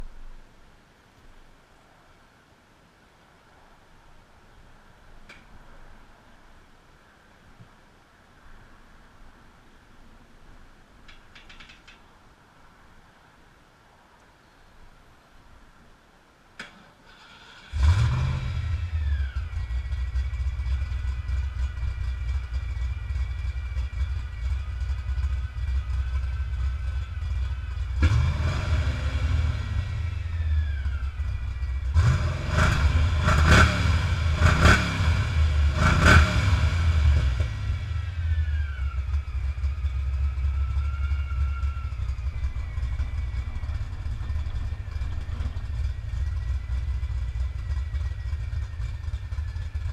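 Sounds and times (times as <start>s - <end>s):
car engine idling and revving: 17.5s - 49.9s.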